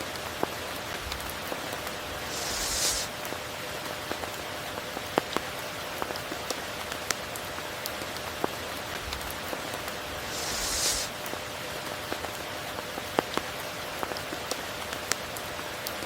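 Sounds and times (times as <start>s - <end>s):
steady rain falling: 0.0s - 16.0s
raindrops ticking close by: 3.1s - 10.4s, 11.1s - 16.0s.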